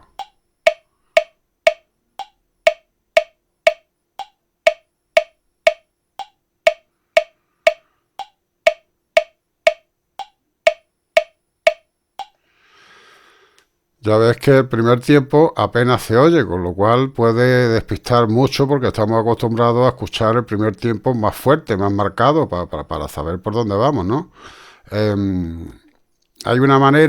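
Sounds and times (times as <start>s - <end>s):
metronome clicking: 0.0s - 12.4s.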